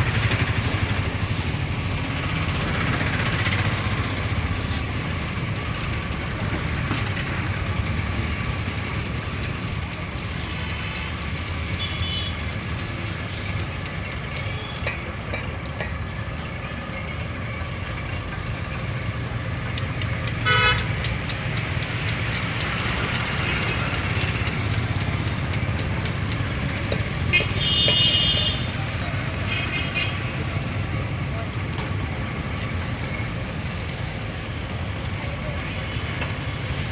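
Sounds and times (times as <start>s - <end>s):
road traffic rumbling: 0.0s - 36.9s
vehicle horn toots: 20.4s - 20.9s, 27.2s - 28.7s.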